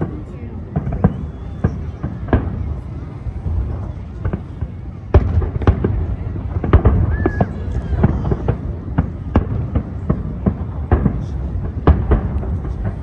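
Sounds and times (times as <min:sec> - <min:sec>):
fireworks bangs: 0:00.0 - 0:13.0
firework whistle: 0:00.7 - 0:04.4, 0:06.9 - 0:08.6.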